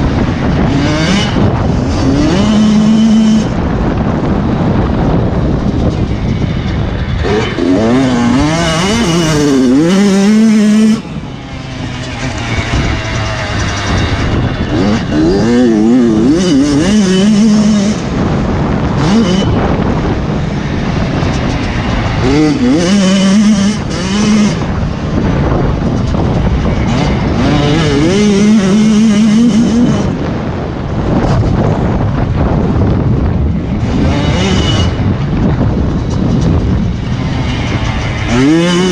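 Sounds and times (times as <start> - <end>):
motocross bike engine revving: 0.0 - 38.9
noisy rumble: 0.0 - 38.9.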